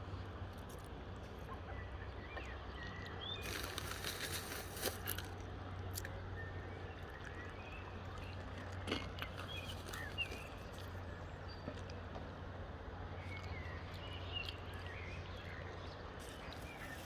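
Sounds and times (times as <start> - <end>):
water birds chirping: 1.6 - 17.0
rustling noise: 3.4 - 5.3.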